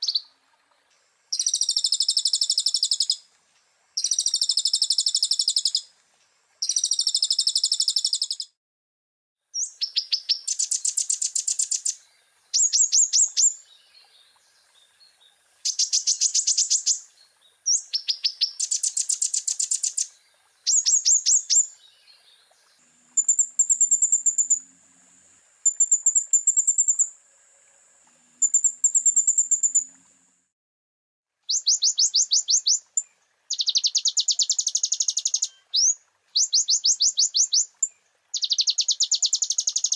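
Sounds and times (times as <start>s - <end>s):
bird trilling: 31.5s - 32.9s.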